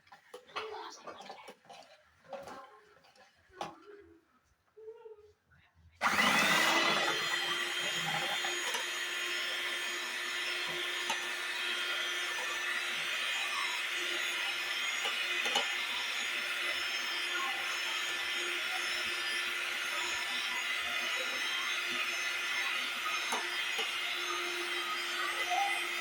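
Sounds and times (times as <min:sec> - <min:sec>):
electric mixer motor: 0:06.0 - 0:26.0.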